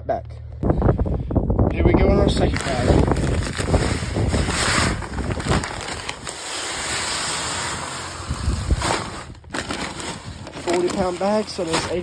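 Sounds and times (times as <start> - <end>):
pellets pouring into hopper: 2.2 - 12.0.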